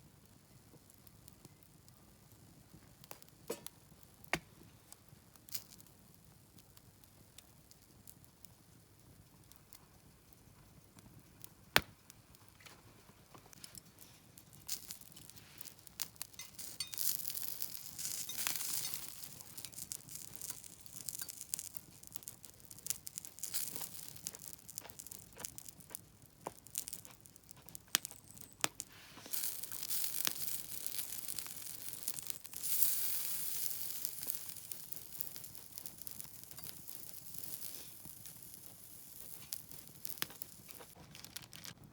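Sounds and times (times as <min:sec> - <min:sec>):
campfire crackling pops: 0:00.0 - 0:41.8
sizzling hiss: 0:13.5 - 0:41.0.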